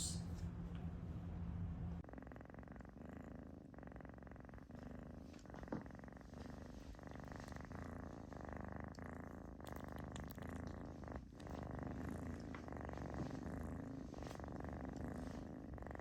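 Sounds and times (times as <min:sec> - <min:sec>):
low hum: 0:00.0 - 0:02.0
cat purring: 0:01.8 - 0:16.0.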